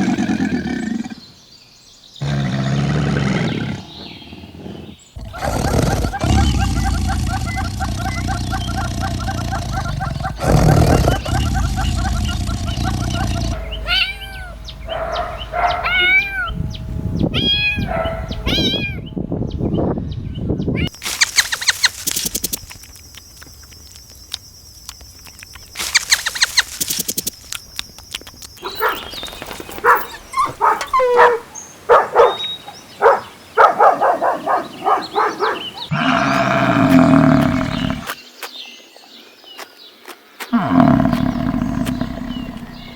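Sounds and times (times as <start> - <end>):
long low animal calls: 2.2 - 16.6, 34.3 - 38.2, 40.6 - 42.9
rapid pulsed animal calls: 20.9 - 24.4, 25.6 - 27.4.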